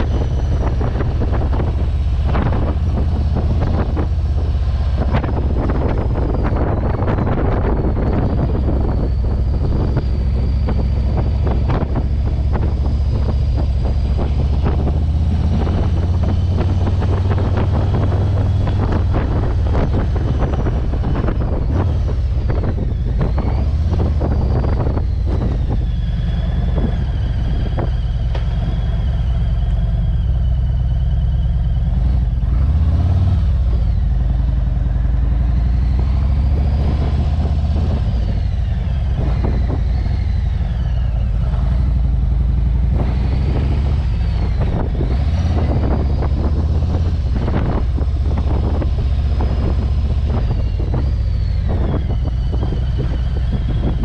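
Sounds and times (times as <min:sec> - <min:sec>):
motorcycle engine running: 0:00.0 - 0:32.8
wind buffeting microphone: 0:00.0 - 0:54.0.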